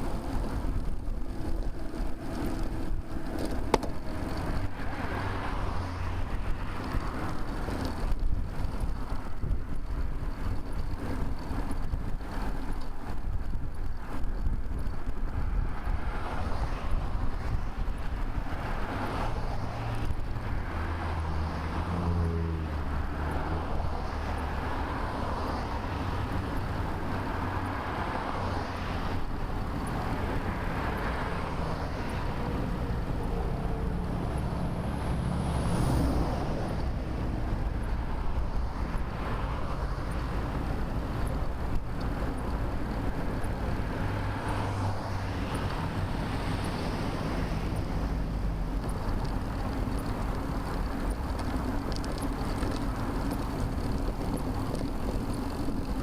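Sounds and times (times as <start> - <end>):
vehicles passing: 0.0 - 56.0.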